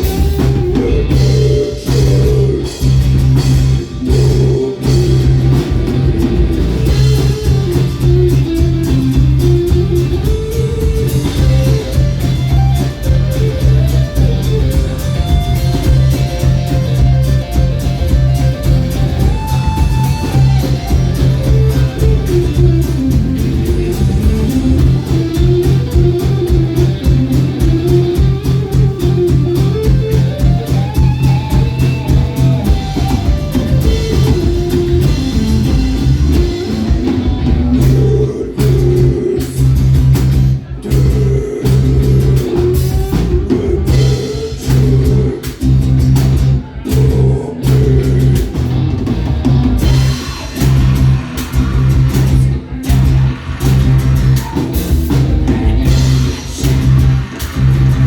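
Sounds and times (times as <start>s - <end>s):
guitar melody: 0.0s - 38.1s, 48.0s - 58.0s
live instrumental band: 0.0s - 58.0s.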